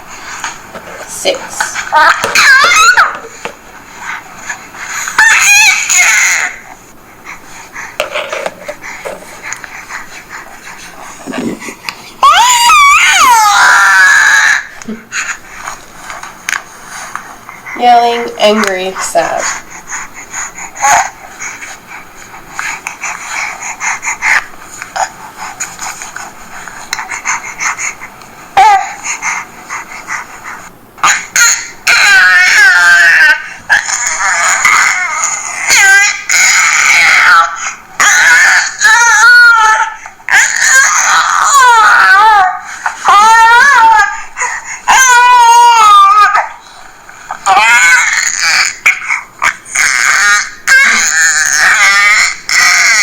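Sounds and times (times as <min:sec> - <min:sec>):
recorded baby fussing through small speaker: 0:00.0 - 0:53.0
baby squeal: 0:01.9 - 0:03.3, 0:05.2 - 0:06.6, 0:12.2 - 0:14.8, 0:31.0 - 0:44.2, 0:44.9 - 0:46.5, 0:47.4 - 0:53.0
faint baby sounds: 0:28.6 - 0:29.4, 0:31.0 - 0:46.7, 0:47.3 - 0:53.0.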